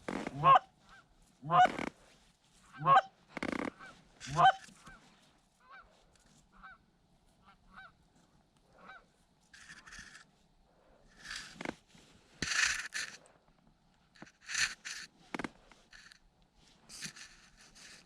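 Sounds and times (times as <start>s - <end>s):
goose honking: 0.3s - 0.7s, 1.4s - 1.8s, 2.7s - 3.1s, 3.7s - 5.0s.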